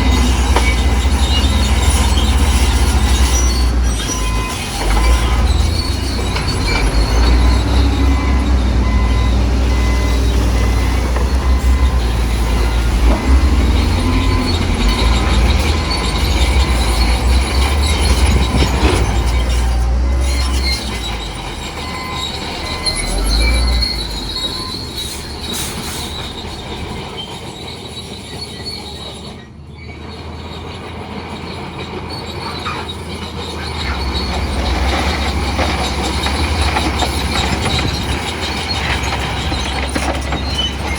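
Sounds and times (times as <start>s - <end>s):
deep engine rumble: 0.0s - 27.3s
bulldozer tracks squealing and clanking: 0.0s - 40.9s.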